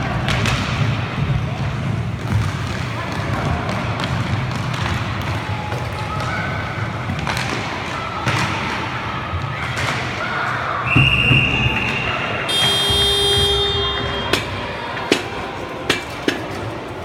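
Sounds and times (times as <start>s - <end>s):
people shouting: 9.5s - 15.8s
referee's whistle: 10.9s - 14.7s.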